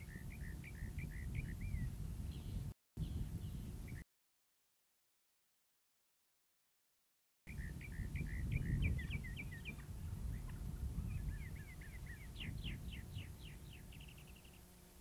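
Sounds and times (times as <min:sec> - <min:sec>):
small birds chirping: 0:00.0 - 0:04.0, 0:07.5 - 0:15.0.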